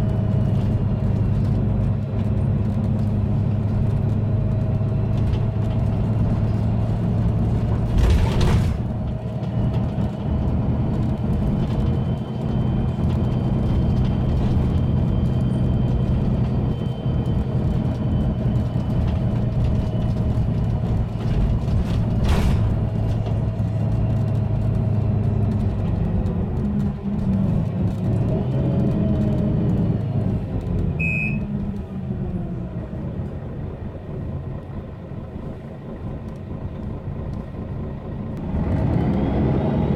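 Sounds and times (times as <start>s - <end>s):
bus diesel engine drone: 0.0s - 39.9s
short high beep: 31.0s - 31.5s
turbo whistle: 31.0s - 31.5s.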